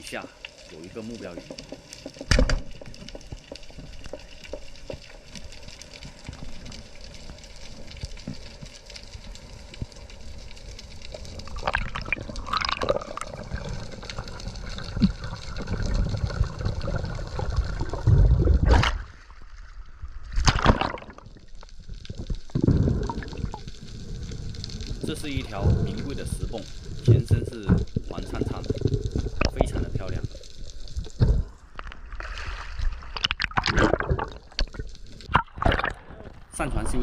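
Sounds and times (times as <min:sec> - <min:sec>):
underwater water noise gurgling: 0:00.0 - 0:37.0
bursts of bubbles: 0:11.4 - 0:19.4, 0:20.3 - 0:23.7, 0:24.8 - 0:31.6, 0:32.2 - 0:37.0.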